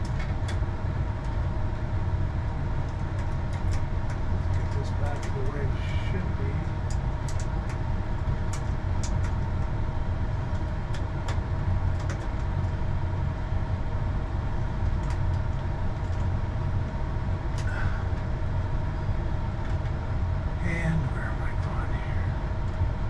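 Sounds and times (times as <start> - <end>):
faint steady whine: 0.0 - 23.0
low mechanical hum: 0.0 - 23.0
light clicks and taps: 2.9 - 5.6, 6.6 - 7.8.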